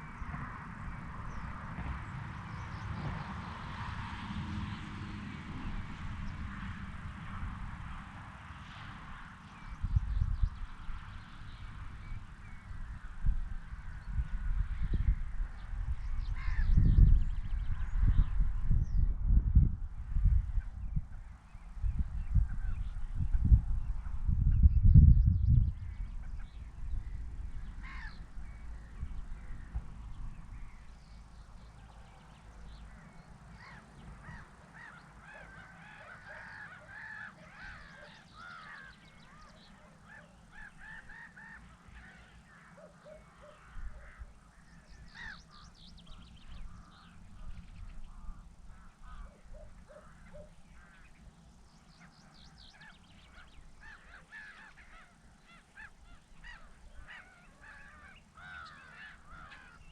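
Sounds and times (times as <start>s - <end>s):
flock of birds calling: 14.8s - 17.0s, 25.8s - 29.8s, 30.5s - 59.9s.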